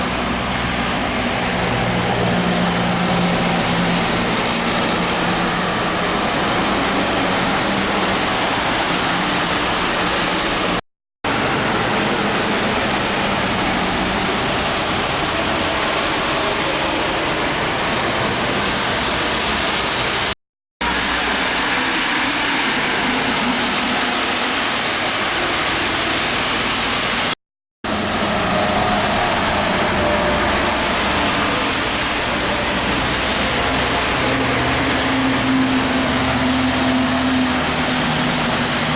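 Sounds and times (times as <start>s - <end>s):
heavy rain hissing: 0.0s - 38.9s
truck engines passing: 0.0s - 38.9s
tyres on wet road: 0.0s - 38.9s.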